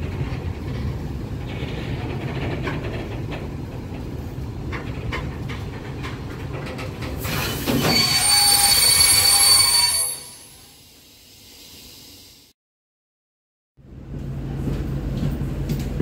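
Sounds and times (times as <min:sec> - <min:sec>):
freight train rumbling past: 0:00.0 - 0:09.8
high-pitched metallic wheel squeal: 0:07.3 - 0:10.8.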